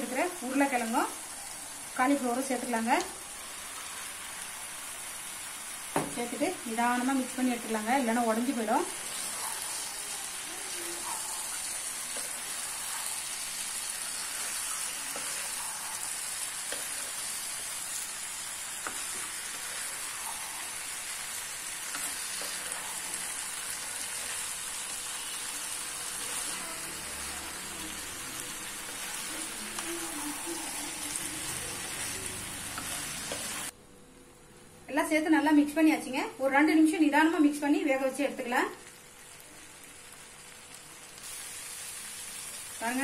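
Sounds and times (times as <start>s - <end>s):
vegetables sizzling in pan: 0.0s - 33.8s, 36.6s - 43.0s.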